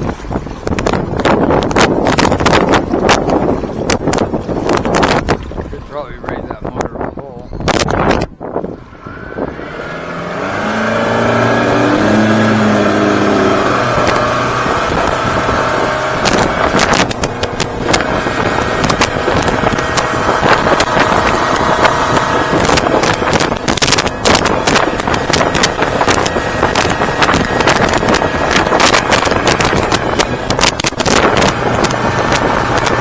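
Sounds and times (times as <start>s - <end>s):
outboard motor throttling up: 0.0s - 7.0s, 7.6s - 33.0s
wind and water rushing: 0.0s - 33.0s
sharp knocks and buffets: 9.4s - 33.0s.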